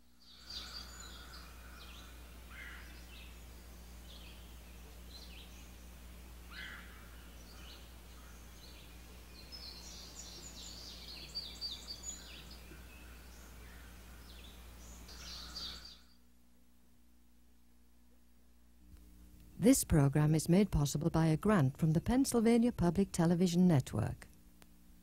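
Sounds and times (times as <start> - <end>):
songbirds chirping and trilling: 0.0 - 16.2
steady low hum: 0.0 - 25.0.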